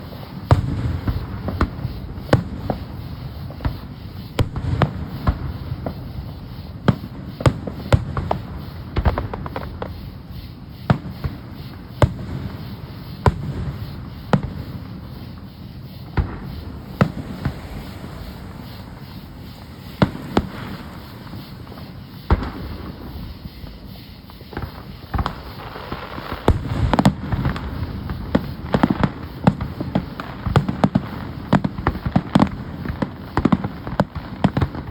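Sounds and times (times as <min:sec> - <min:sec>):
fireworks bangs and crackles: 0:00.0 - 0:34.9.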